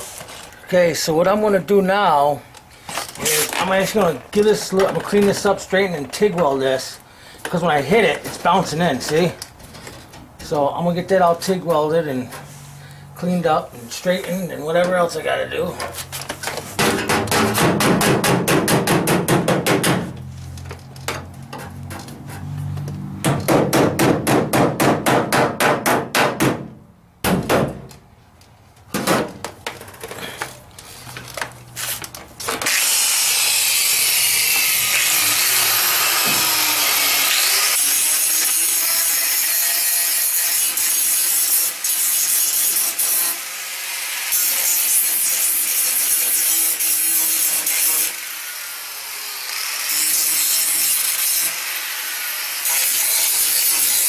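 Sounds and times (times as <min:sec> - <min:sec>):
power tool grinding metal: 0:32.5 - 0:54.0.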